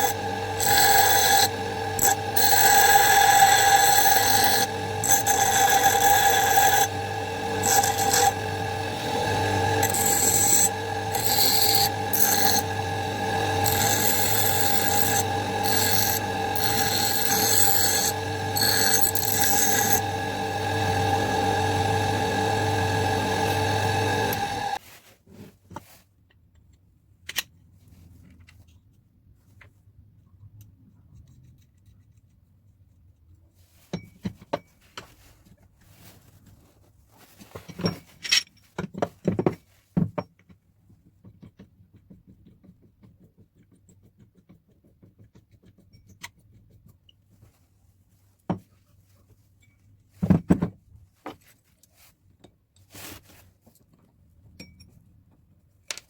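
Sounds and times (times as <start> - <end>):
metal tool parts clicking and scraping: 37.7 - 38.7.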